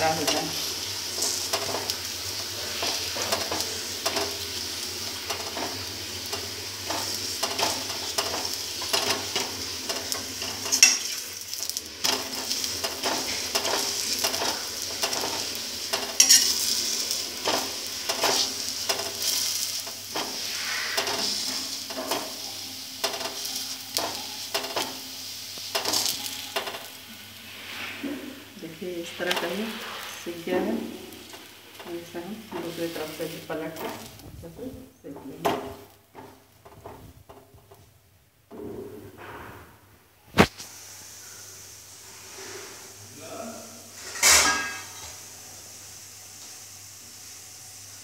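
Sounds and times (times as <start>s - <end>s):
spoon tapping and scraping griddle: 0.0s - 27.0s, 29.0s - 30.0s, 31.1s - 34.2s, 35.1s - 37.9s
flatbread sizzling in oil: 0.0s - 38.0s, 40.2s - 48.0s.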